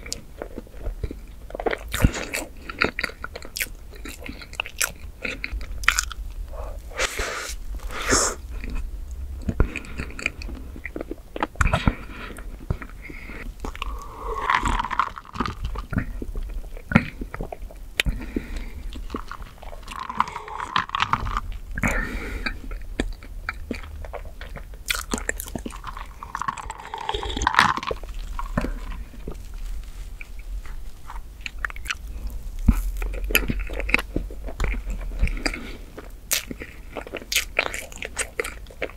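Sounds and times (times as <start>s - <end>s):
close-miked chewing: 0.0s - 38.9s
swallowing a drink: 13.3s - 15.4s, 18.0s - 22.6s, 26.1s - 29.0s.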